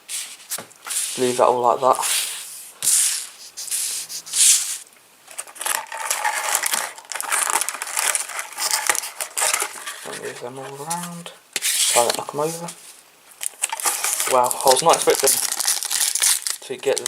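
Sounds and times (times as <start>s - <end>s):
cards rubbing and sliding: 0.1s - 4.9s, 5.9s - 13.0s
foil wrapper crinkling and tearing: 3.0s - 11.0s, 13.4s - 17.0s.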